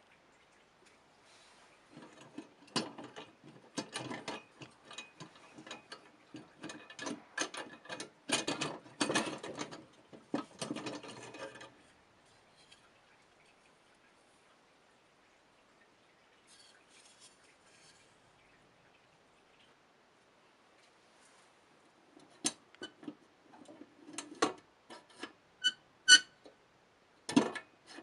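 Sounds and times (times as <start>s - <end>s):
small metal parts clicking and rattling: 1.9s - 11.8s.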